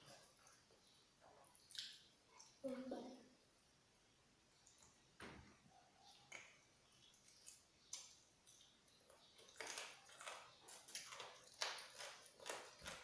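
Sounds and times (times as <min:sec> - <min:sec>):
crunchy chewing of fried chicken: 0:07.0 - 0:13.0.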